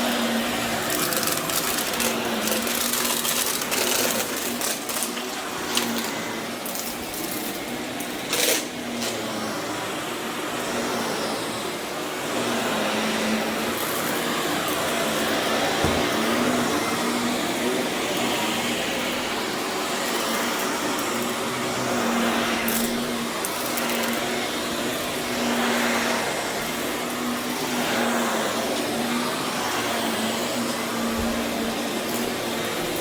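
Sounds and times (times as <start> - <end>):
vacuum cleaner running on carpet: 0.0 - 33.0
grit crackling in vacuum: 0.2 - 7.5.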